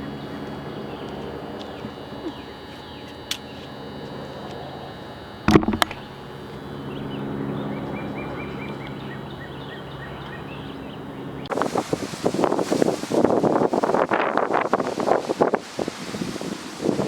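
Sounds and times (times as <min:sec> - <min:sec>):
steady low hum: 0:00.0 - 0:15.3
sharp knock: 0:05.5 - 0:06.0.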